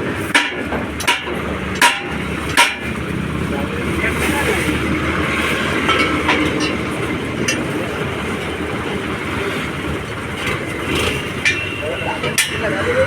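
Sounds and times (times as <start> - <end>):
tractor diesel engine running: 0.0 - 13.0
sharp metallic clicks and rattles: 0.2 - 3.6, 10.0 - 13.0.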